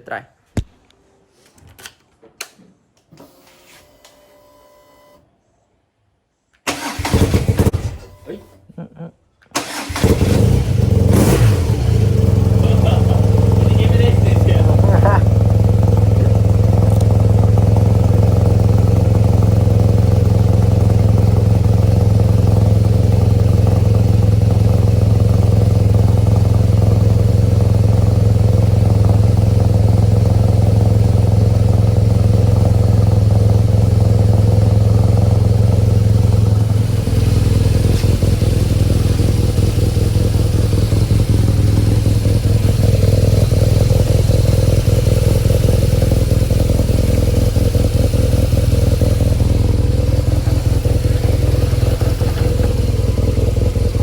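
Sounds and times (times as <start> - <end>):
motorcycle engine running: 9.7 - 54.0.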